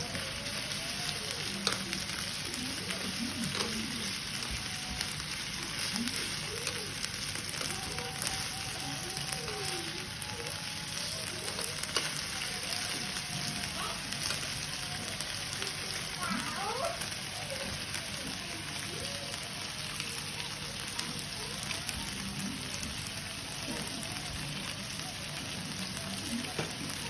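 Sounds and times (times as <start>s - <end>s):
meat sizzling on a grill: 0.0s - 27.0s.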